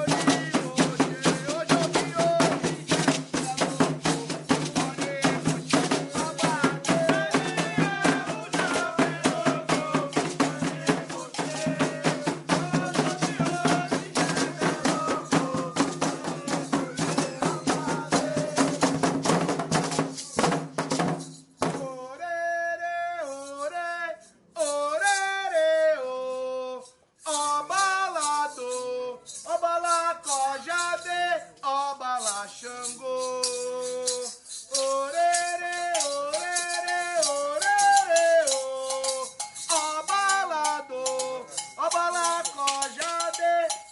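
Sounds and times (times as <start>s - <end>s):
voices singing: 0.0s - 19.4s, 24.6s - 43.9s
fast drumming: 0.0s - 21.8s, 35.3s - 43.9s
shaken rattle: 0.0s - 22.0s, 23.2s - 43.9s.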